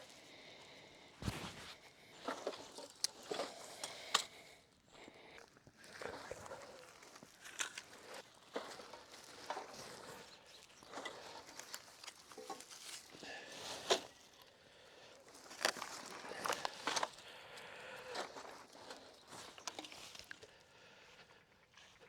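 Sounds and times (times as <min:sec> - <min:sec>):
footsteps: 0:01.2 - 0:01.9.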